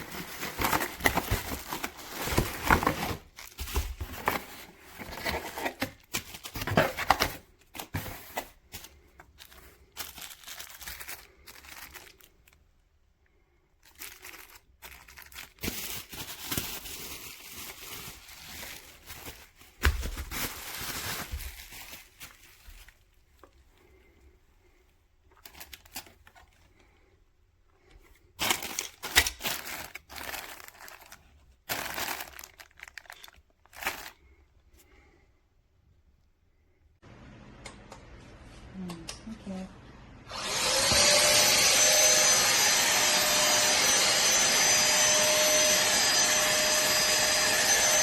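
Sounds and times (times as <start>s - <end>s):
packaging crinkling and tearing: 0.0s - 12.7s, 13.8s - 23.5s, 25.4s - 26.9s, 28.3s - 34.4s.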